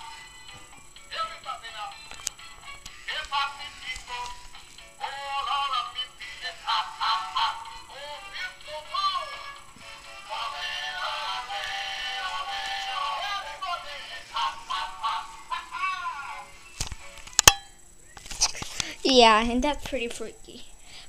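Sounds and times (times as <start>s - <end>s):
high voice singing: 10.2s - 16.6s.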